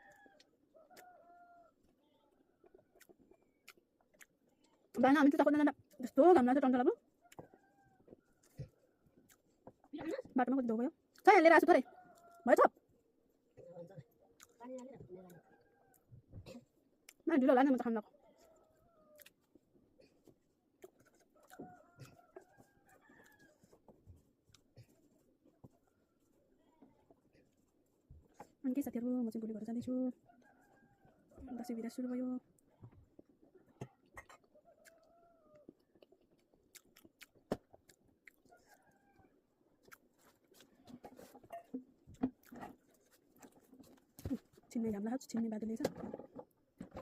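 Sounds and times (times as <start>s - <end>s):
faint rooster crowing: 0.0s - 3.2s, 7.2s - 9.2s, 11.8s - 12.7s, 15.1s - 16.3s, 18.1s - 19.4s, 21.2s - 23.9s, 30.1s - 32.0s, 33.8s - 35.9s, 38.4s - 39.5s
person chewing food: 2.6s - 5.0s, 7.2s - 9.9s, 14.1s - 17.2s, 18.4s - 28.6s, 32.5s - 44.7s.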